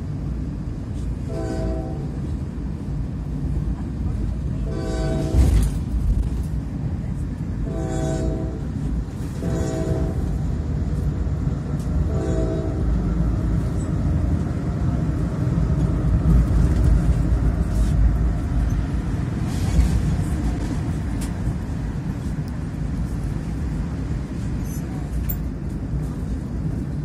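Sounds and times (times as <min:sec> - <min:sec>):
train wheels rumbling on track: 0:00.0 - 0:27.0
train horn blast: 0:01.2 - 0:02.2, 0:04.6 - 0:05.7, 0:07.6 - 0:10.4, 0:12.0 - 0:13.0
sharp clicks of train wheels: 0:10.2 - 0:12.1.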